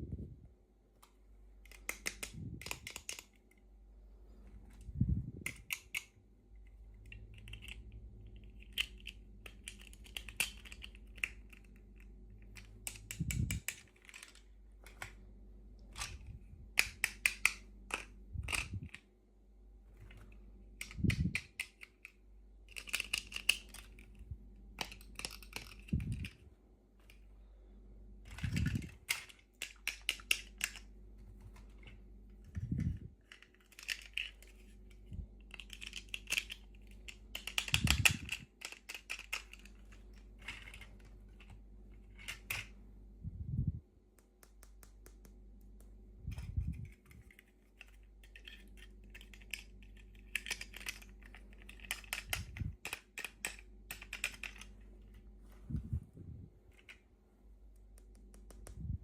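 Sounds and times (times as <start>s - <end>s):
plastic toy pieces clicking: 1.6s - 3.6s, 5.4s - 6.2s, 7.0s - 15.2s, 15.8s - 19.0s, 20.7s - 24.2s, 24.8s - 26.4s, 28.3s - 30.9s, 33.2s - 42.7s, 46.4s - 54.8s.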